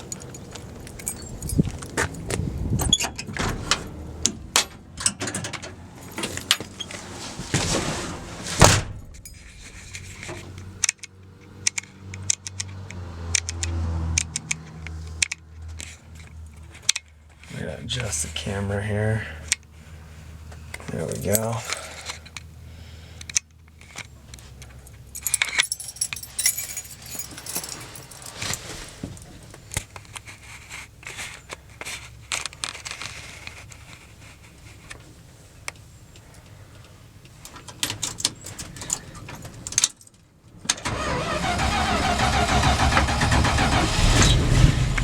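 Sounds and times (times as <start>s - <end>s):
keys jangling: 0.0s - 3.6s, 4.4s - 6.9s, 9.1s - 11.1s, 23.9s - 30.1s
truck engine cranking and running: 0.0s - 7.0s, 37.2s - 45.0s.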